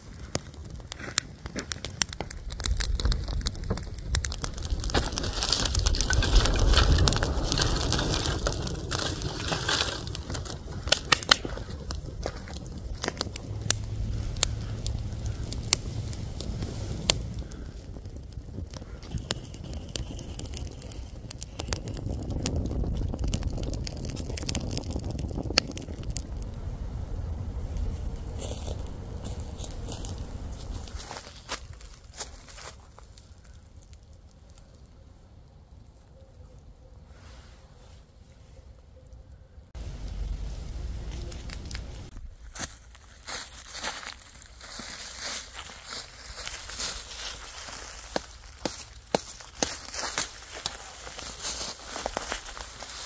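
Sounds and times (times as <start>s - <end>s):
twigs cracking and snapping: 0.0s - 34.9s, 39.8s - 53.0s
footsteps crunching dry leaves: 27.8s - 33.4s, 40.9s - 53.0s.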